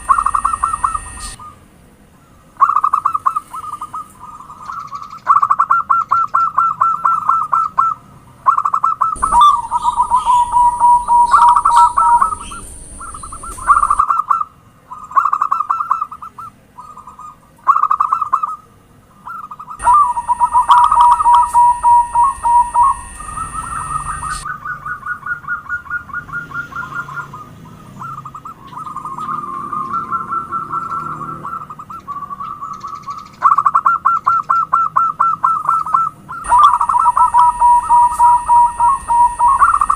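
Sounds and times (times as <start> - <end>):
steady high hiss: 0.0 - 1.4, 9.2 - 14.0, 19.8 - 24.5, 36.4 - 39.9
doves cooing: 0.0 - 1.6, 2.6 - 18.6, 19.3 - 39.9.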